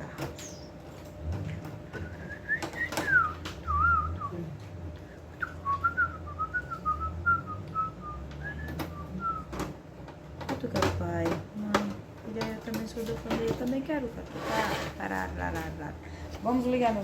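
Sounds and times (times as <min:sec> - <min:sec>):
person whistling a tune: 0:02.0 - 0:04.4, 0:05.4 - 0:09.5.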